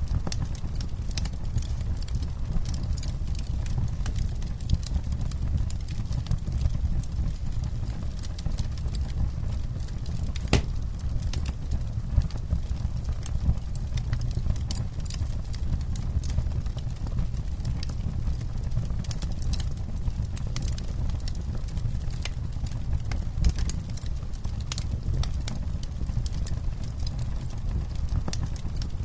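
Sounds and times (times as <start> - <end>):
campfire crackling: 0.0 - 29.0.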